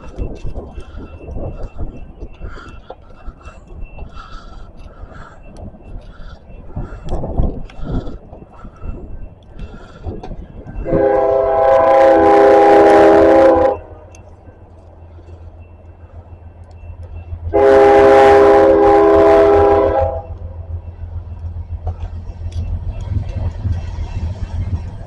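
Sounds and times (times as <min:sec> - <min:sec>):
low rumble of passing train: 0:00.0 - 0:25.0
locomotive air horn blasts: 0:10.8 - 0:14.2, 0:17.5 - 0:20.5.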